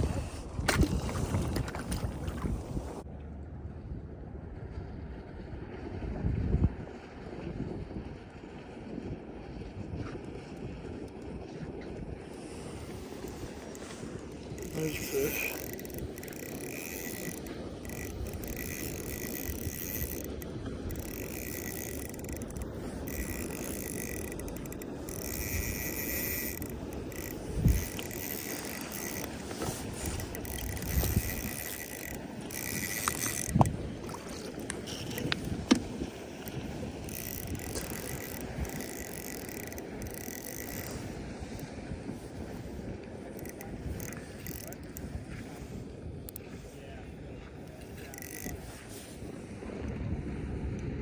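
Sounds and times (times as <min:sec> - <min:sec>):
fishing reel ratcheting: 0:13.0 - 0:41.7, 0:43.3 - 0:45.1, 0:47.6 - 0:48.7.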